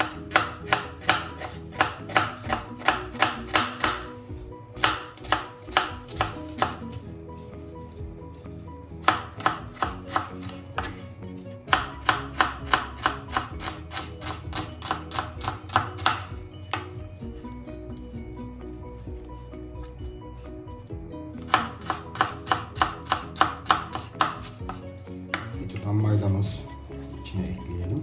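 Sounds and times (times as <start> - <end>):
knife chopping on wooden board: 0.0 - 4.1, 4.8 - 7.0, 9.0 - 11.0, 11.7 - 17.0, 21.4 - 25.6.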